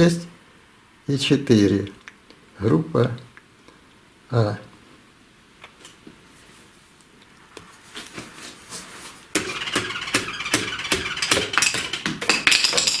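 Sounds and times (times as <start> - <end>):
sharp metal knocks and clatter: 9.4 - 13.0.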